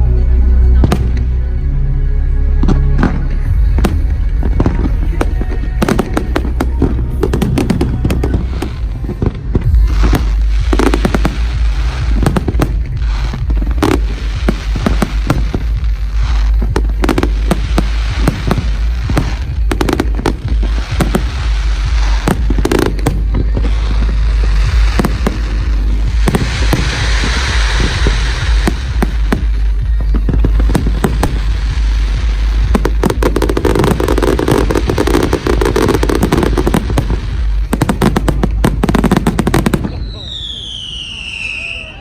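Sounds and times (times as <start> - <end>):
low rumble: 0.0 - 40.6
fireworks banging and crackling: 0.8 - 1.4, 2.6 - 42.0.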